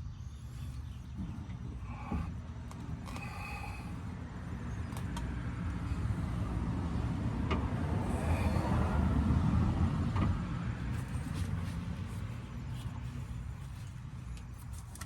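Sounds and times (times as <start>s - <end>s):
winch grinding rumble: 0.4s - 10.2s.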